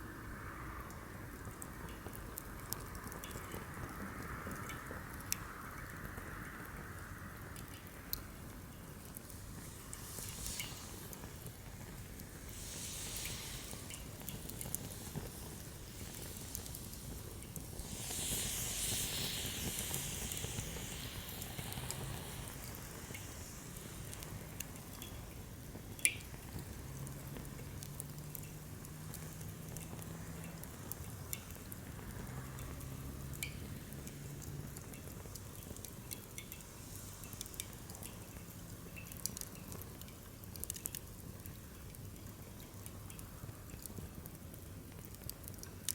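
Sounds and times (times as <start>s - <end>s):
campfire crackling and popping: 1.3s - 45.9s
fire hissing: 7.8s - 40.0s.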